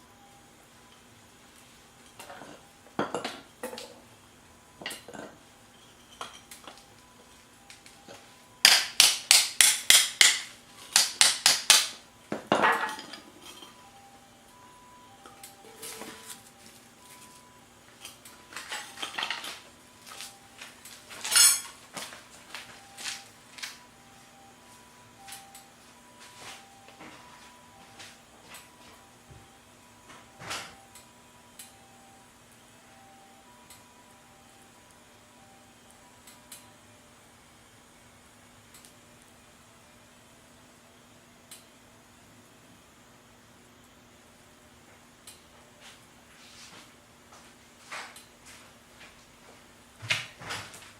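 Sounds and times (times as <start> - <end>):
metal cookware clinking: 12.5 - 13.8, 21.2 - 21.8.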